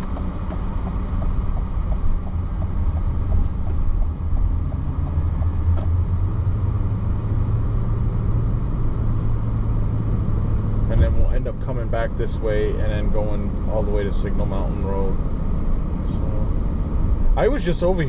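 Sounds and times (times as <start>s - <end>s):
turn signal ticking: 0.0s - 6.8s
car engine and tyres rumble: 0.0s - 18.0s.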